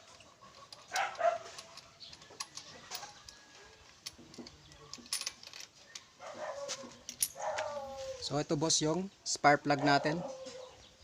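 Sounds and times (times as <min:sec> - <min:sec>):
dog yipping: 0:00.9 - 0:01.6, 0:06.2 - 0:08.2.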